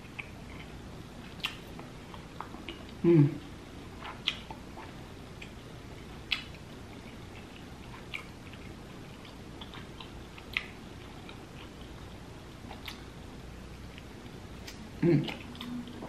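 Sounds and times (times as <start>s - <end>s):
faint steady hiss: 0.0s - 16.0s
wet mouth clicks: 4.0s - 4.6s.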